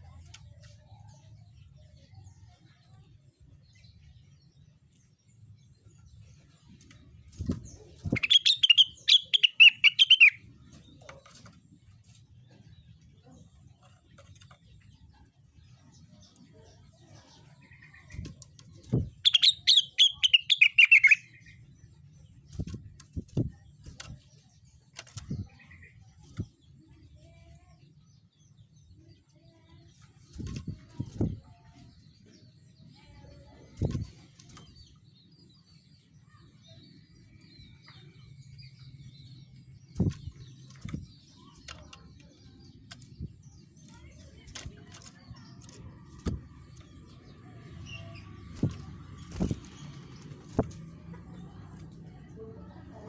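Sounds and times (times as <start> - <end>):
faint chirps: 0.0 - 53.0
songbird trill: 0.0 - 53.0
soft low thuds: 22.5 - 24.3, 30.3 - 31.7, 39.9 - 52.4.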